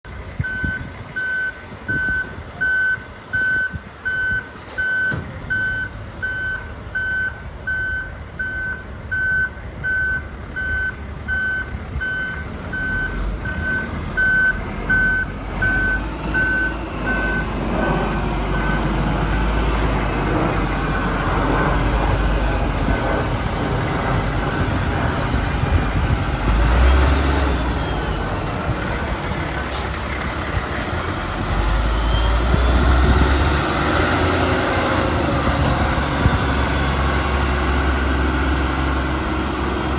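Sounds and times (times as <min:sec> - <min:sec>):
truck engine running: 0:00.0 - 0:39.9
truck backup alarm beeping: 0:00.4 - 0:23.2, 0:23.9 - 0:30.6.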